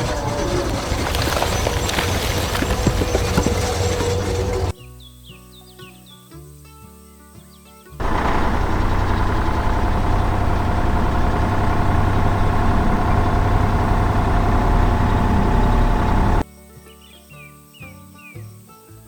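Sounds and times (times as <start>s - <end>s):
heavy machine engine rumbling: 0.0s - 4.8s, 8.0s - 16.4s.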